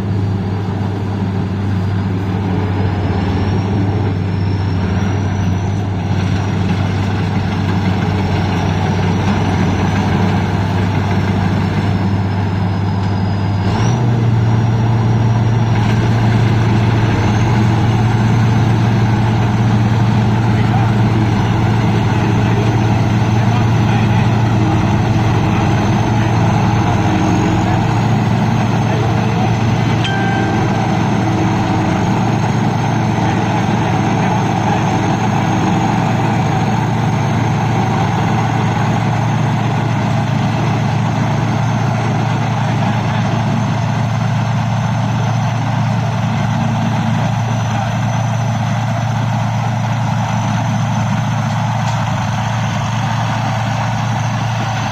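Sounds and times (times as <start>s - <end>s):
thin high whine: 0.0s - 7.5s, 23.5s - 36.8s
combine harvester engine running: 0.0s - 54.9s.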